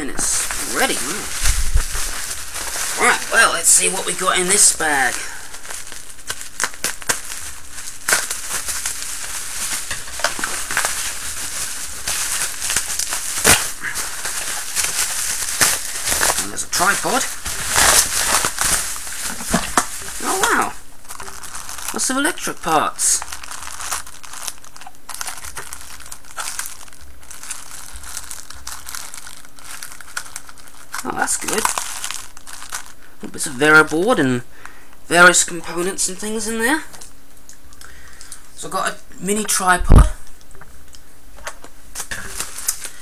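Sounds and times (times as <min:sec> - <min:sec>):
bag rustling and crinkling: 0:00.0 - 0:33.1, 0:41.9 - 0:43.0.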